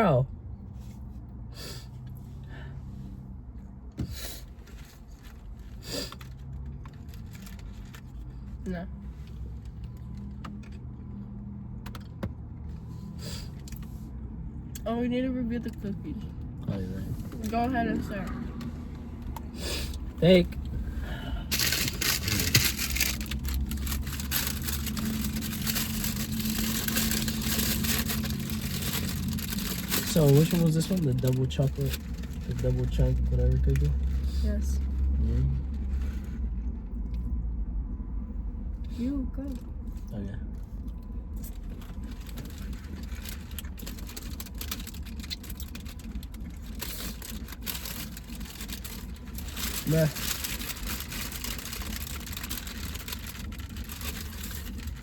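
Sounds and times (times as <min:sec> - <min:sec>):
car engine idling: 0:00.0 - 0:55.0
handling crackles: 0:21.5 - 0:32.6.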